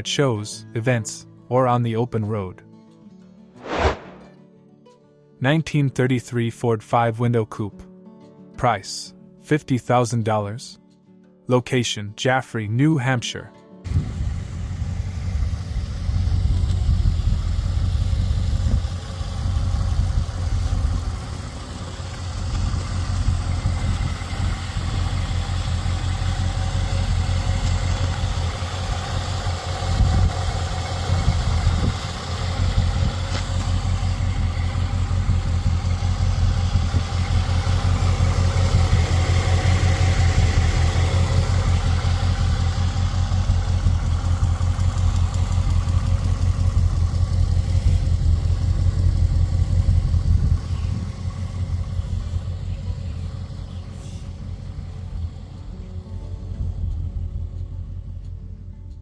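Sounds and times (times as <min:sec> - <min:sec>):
car engine idling: 0:13.9 - 0:59.0.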